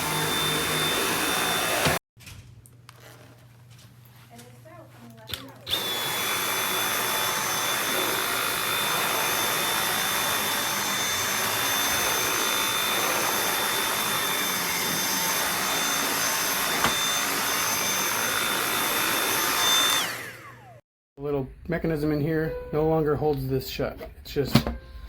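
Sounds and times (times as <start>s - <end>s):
vacuum cleaner motor whining: 0.0s - 2.0s, 5.7s - 20.8s.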